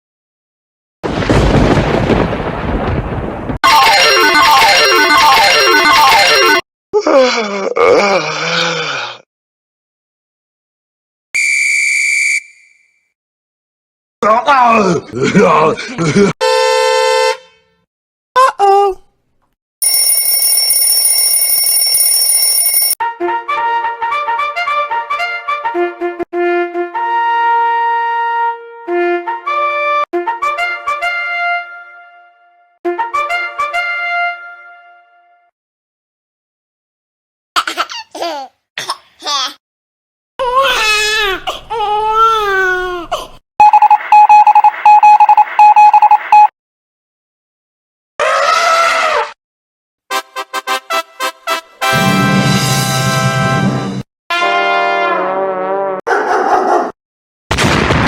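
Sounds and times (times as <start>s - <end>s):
shrill electronic alarm tone: 3.7s - 6.6s, 19.8s - 23.0s
person wailing sobs: 7.0s - 9.0s.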